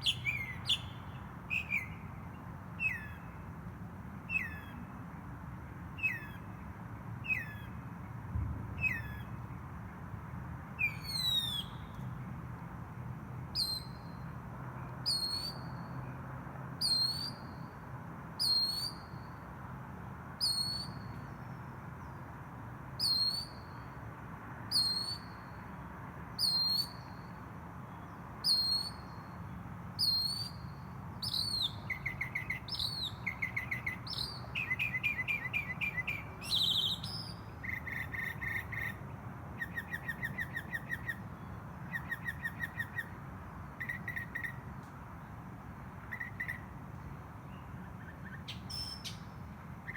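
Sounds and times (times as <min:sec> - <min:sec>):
bird singing: 0:00.0 - 0:03.5, 0:04.2 - 0:04.9, 0:05.9 - 0:07.8, 0:08.8 - 0:09.6, 0:10.8 - 0:12.2, 0:13.5 - 0:16.2, 0:16.8 - 0:17.8, 0:18.4 - 0:19.4, 0:20.4 - 0:22.3, 0:23.0 - 0:24.0, 0:24.7 - 0:25.6, 0:26.4 - 0:45.3, 0:46.0 - 0:49.9.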